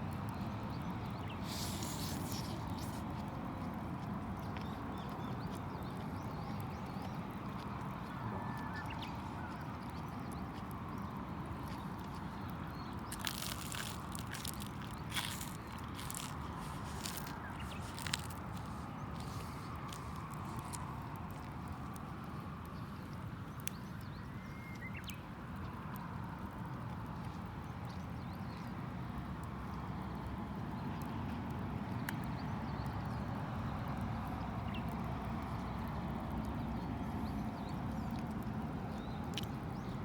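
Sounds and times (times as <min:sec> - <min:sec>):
campfire rumbling: 0:09.2 - 0:22.8
campfire popping and crackling: 0:09.2 - 0:23.9.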